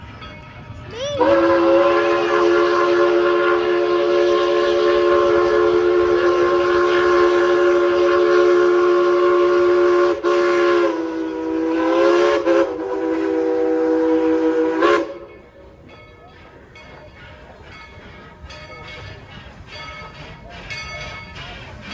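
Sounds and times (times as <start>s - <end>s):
steam locomotive whistle: 1.0s - 15.5s.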